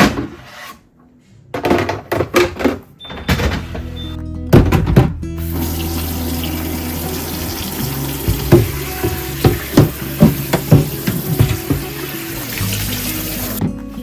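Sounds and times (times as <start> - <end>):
items knocking and clattering: 1.5 - 3.9, 4.5 - 5.7, 8.2 - 12.1, 13.4 - 14.0
tap running into sink: 5.4 - 13.7.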